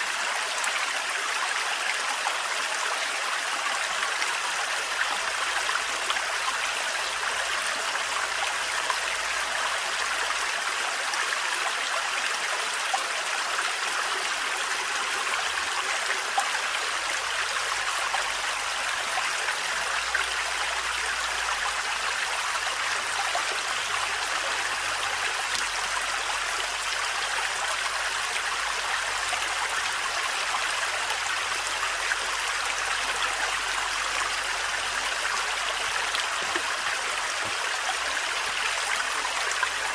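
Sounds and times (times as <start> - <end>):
small splashes and drips: 35.6 - 39.9.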